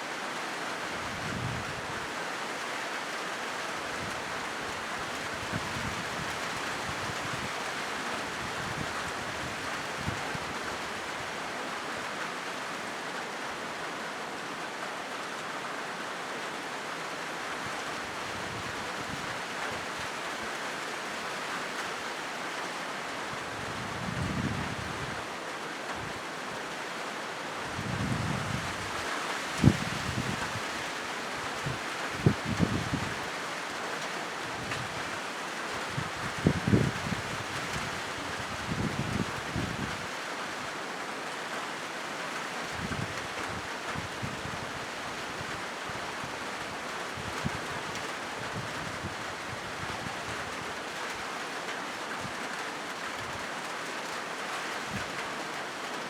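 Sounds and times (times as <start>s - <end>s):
rain drumming on a metal roof: 0.0s - 56.0s.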